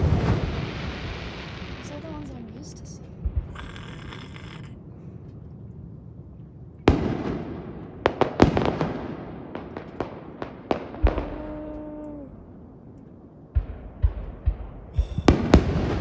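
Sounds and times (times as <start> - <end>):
fireworks bangs and cracks: 0.0 - 4.6, 6.9 - 12.2, 13.5 - 16.0
fireworks booming: 0.0 - 4.9, 6.9 - 12.8, 13.5 - 16.0.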